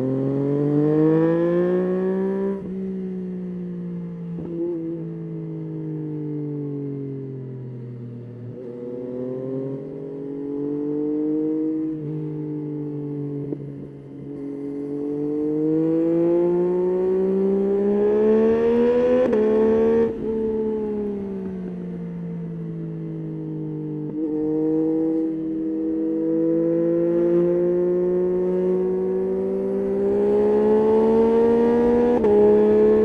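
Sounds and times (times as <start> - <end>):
motorcycle engine revving through gears: 0.0 - 2.7, 8.6 - 12.1, 14.8 - 21.6, 23.9 - 33.0.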